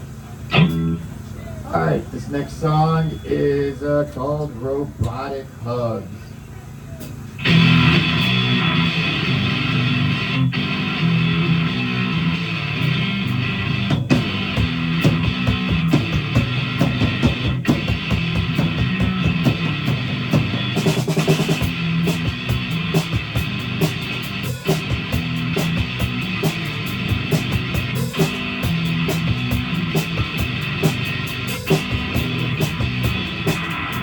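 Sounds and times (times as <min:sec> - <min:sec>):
electric guitar: 0:00.0 - 0:01.9, 0:07.0 - 0:34.0
drum kit beat: 0:07.0 - 0:34.0.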